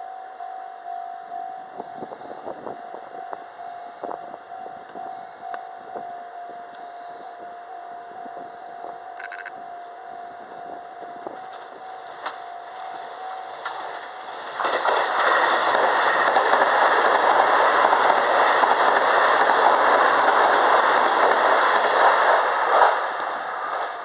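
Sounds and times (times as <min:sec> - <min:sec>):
level crossing alarm ringing: 0:00.0 - 0:14.4
train wheels rushing on rails: 0:10.3 - 0:24.0.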